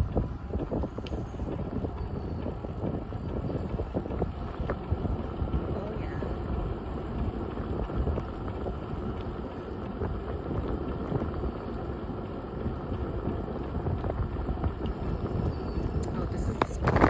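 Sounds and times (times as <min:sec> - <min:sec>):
bicycle tyres rolling on trail: 0:00.0 - 0:17.0
wind buffeting microphone: 0:00.0 - 0:17.0
faint ticks: 0:00.9 - 0:02.6.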